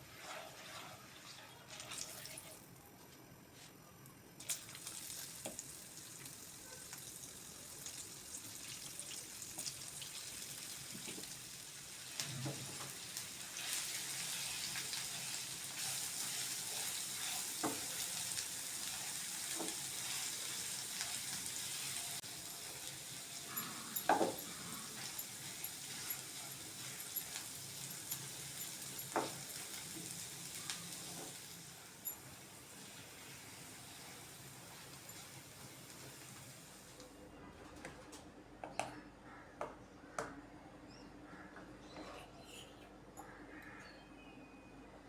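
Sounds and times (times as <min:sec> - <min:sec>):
food sizzling in hot oil: 0:04.5 - 0:37.0.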